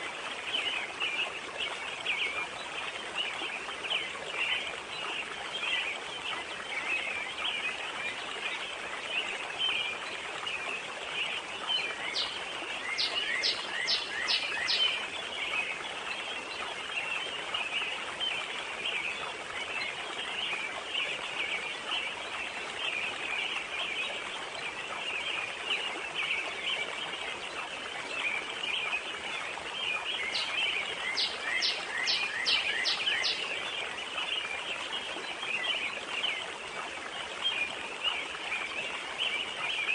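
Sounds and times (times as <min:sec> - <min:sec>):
water and wind hiss: 0:00.0 - 0:39.9
birds and insects chirping: 0:11.8 - 0:15.6, 0:29.9 - 0:34.2.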